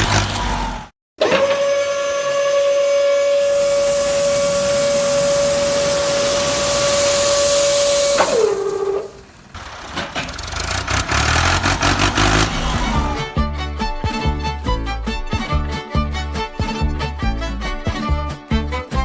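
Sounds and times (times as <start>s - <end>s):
small electric motor whining: 1.3s - 9.5s.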